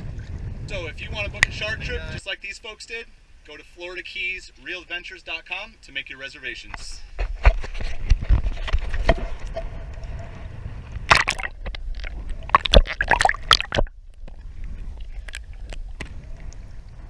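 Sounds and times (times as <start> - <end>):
wind rumbling on microphone: 0.0 - 2.2, 7.1 - 17.0
water splashing and sloshing: 7.2 - 17.0.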